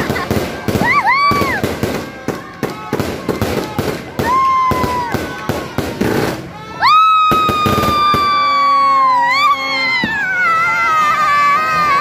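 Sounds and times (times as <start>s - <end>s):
fireworks cracking and popping: 0.0s - 8.5s.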